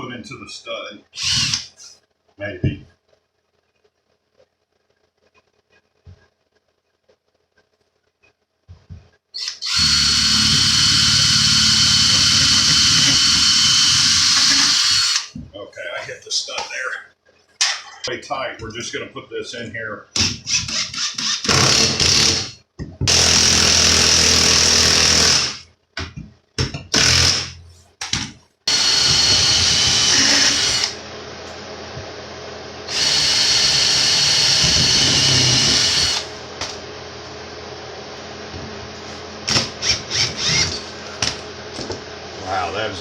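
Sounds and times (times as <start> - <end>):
power drill driving screws: 1.2 - 1.7, 9.4 - 15.3, 20.5 - 25.6, 26.9 - 27.5, 28.7 - 31.0, 32.9 - 36.3, 39.6 - 40.8.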